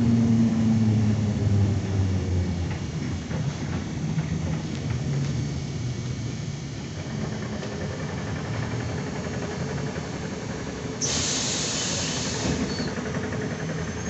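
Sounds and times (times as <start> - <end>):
trolleybus hum and rumble: 0.0 - 14.0
compressed air hissing: 11.0 - 13.0.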